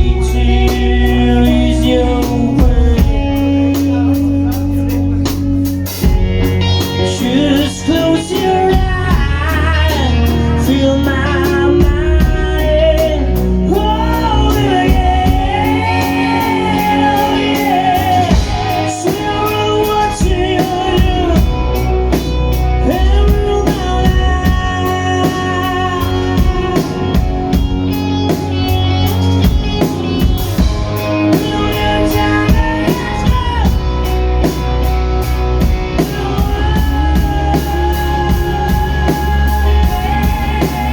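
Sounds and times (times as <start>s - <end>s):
live rock band playing: 0.0s - 40.9s
melodic lead line: 0.0s - 40.9s.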